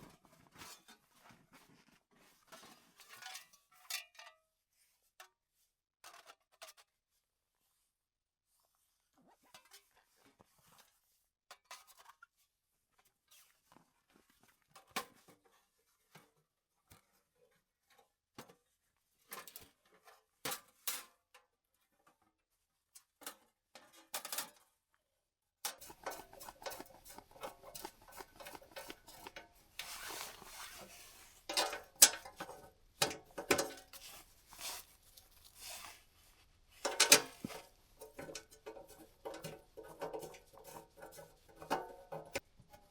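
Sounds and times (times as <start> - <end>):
hands handling gear: 25.7 - 42.9.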